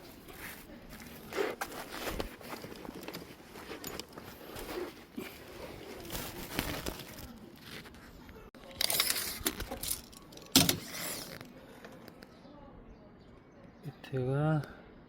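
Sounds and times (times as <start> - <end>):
rustling and scraping of screen mesh: 8.8 - 11.5.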